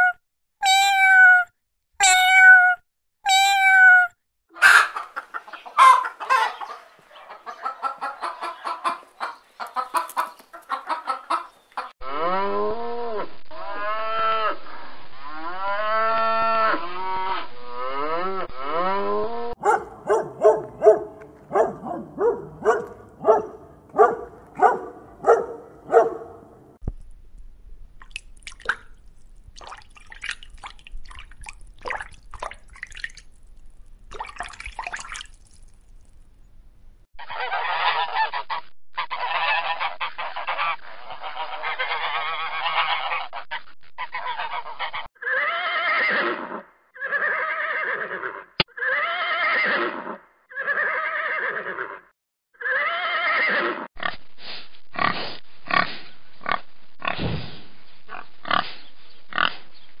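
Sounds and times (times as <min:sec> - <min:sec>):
farm animals calling: 0:03.4 - 0:12.6, 0:15.6 - 0:26.7, 0:37.2 - 0:52.0, 0:52.6 - 0:53.9, 0:58.1 - 0:59.7.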